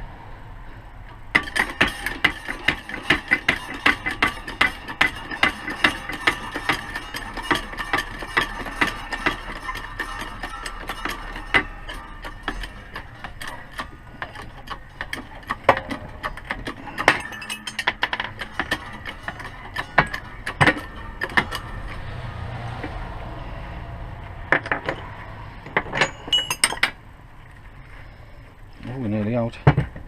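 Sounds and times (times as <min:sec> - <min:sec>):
low steady noise: 0:00.0 - 0:30.0
metal tools clinking on wheel hub: 0:01.1 - 0:27.1.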